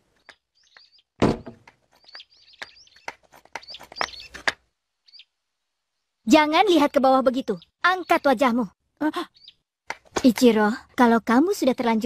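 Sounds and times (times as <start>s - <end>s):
small birds chirping: 0.0s - 12.0s
loud thump: 1.2s - 1.6s.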